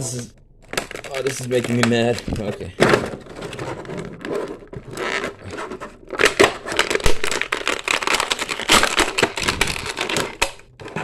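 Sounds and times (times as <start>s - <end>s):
plastic clicks and cracks: 0.6s - 2.6s, 6.1s - 11.0s
plastic packaging crinkling: 0.6s - 11.0s.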